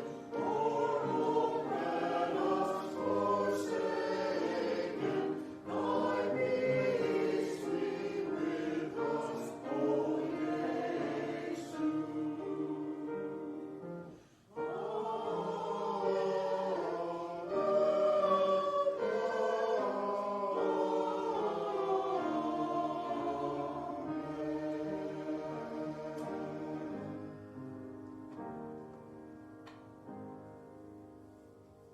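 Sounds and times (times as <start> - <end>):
choir singing sacred music: 0.0 - 29.2.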